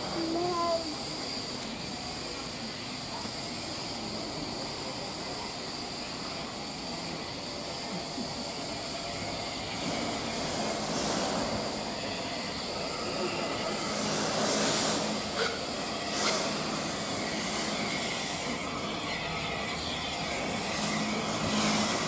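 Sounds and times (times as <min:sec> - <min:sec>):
train rumbling and hissing: 0:00.0 - 0:22.0
high whine: 0:04.9 - 0:22.0.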